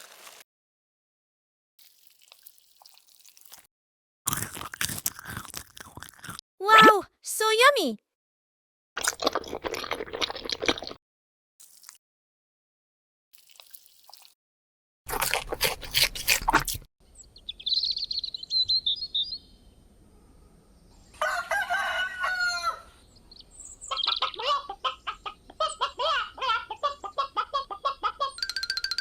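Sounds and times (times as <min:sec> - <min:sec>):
rooster crowing: 0:21.2 - 0:23.0
chickens clucking: 0:23.9 - 0:28.2.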